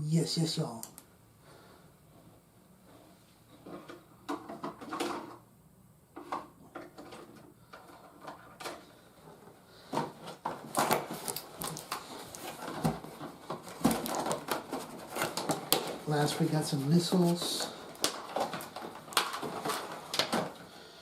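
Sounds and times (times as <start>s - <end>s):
plastic parts clicking and knocking: 3.6s - 5.4s, 6.2s - 16.1s, 17.4s - 20.7s
packaging crinkling and rattling: 6.8s - 20.7s.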